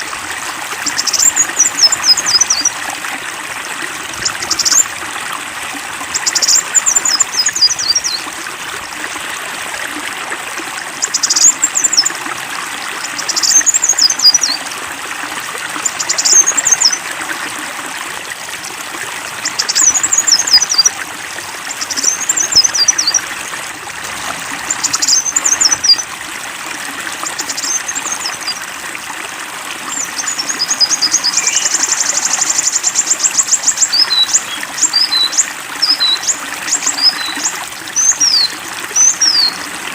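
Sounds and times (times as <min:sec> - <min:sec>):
flowing water rushing: 0:00.0 - 0:39.9
songbird singing: 0:00.8 - 0:02.8, 0:04.1 - 0:04.9, 0:06.1 - 0:08.3, 0:11.0 - 0:12.2, 0:13.0 - 0:14.6, 0:15.8 - 0:17.0, 0:19.4 - 0:21.0, 0:21.7 - 0:23.3, 0:24.5 - 0:26.1, 0:27.2 - 0:28.6, 0:29.8 - 0:39.8.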